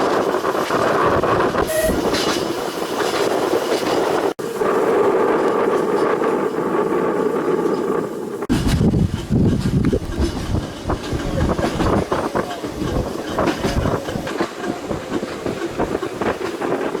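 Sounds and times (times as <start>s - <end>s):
tram rumbling on rails: 0.0s - 17.0s
wheels clattering over track: 5.2s - 17.0s.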